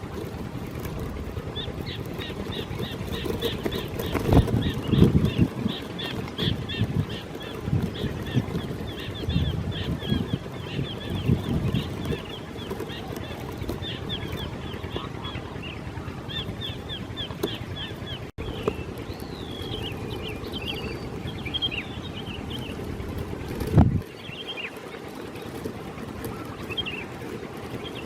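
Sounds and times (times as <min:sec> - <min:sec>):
steady low rumble: 0:00.0 - 0:28.0
birds chirping and whistling: 0:00.1 - 0:28.0.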